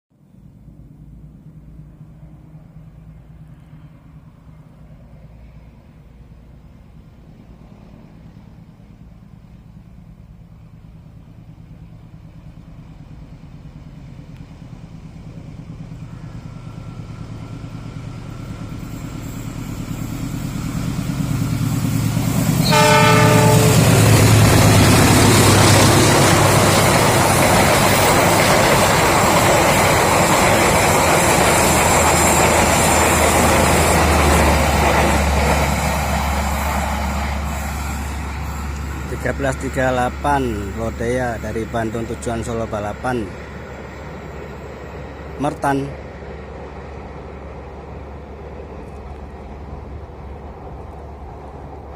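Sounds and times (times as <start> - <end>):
diesel locomotive engine: 0.2 - 51.9
train carriages passing: 0.6 - 51.9
train horn: 22.6 - 24.4.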